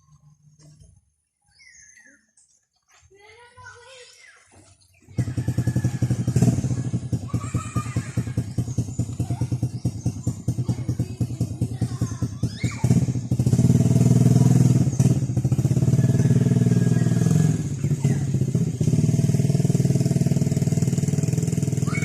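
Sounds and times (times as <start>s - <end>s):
engine running: 5.0s - 22.0s.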